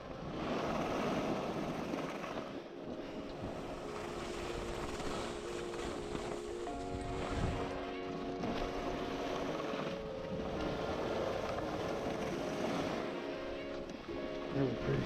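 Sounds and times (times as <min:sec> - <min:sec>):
held chord of background music: 0:00.0 - 0:15.0
skis sliding on snow: 0:03.5 - 0:06.4.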